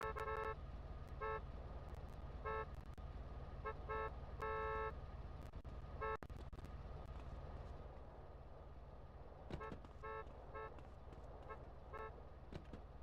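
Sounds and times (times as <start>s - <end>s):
vehicle horn toots: 0.0s - 0.6s, 1.2s - 1.4s, 2.4s - 2.8s, 3.6s - 5.0s, 9.5s - 12.2s.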